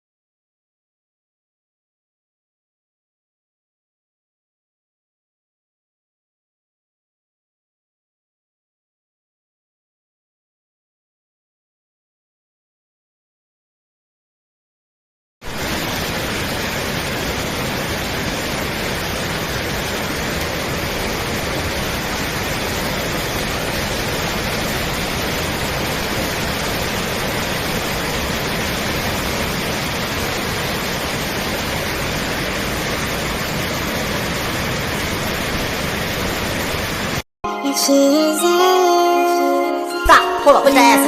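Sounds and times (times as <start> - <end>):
steady static hiss: 15.5 - 37.2.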